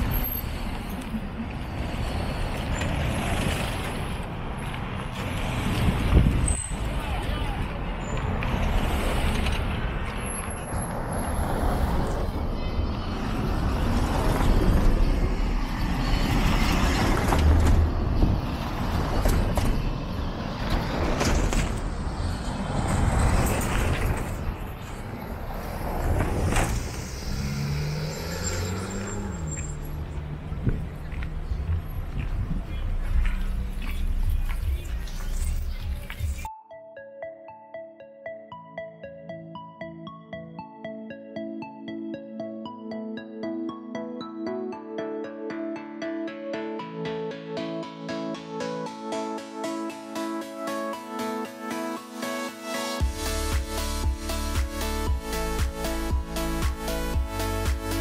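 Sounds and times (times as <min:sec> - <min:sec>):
road traffic rumble and hiss: 0:00.0 - 0:36.5, 0:48.6 - 0:58.0.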